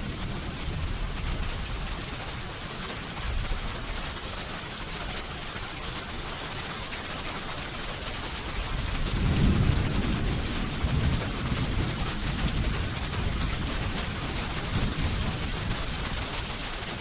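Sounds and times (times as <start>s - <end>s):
rain hiss: 0.0s - 17.0s
thunder rumbling: 8.8s - 16.6s.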